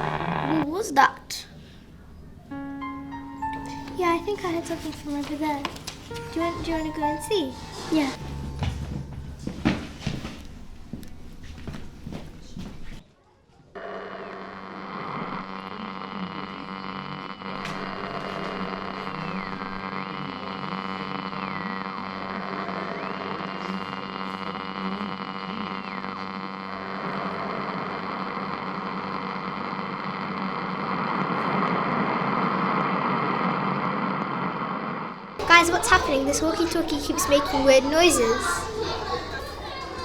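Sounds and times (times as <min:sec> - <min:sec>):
walkie-talkie buzzing hum: 0:14.6 - 0:26.7.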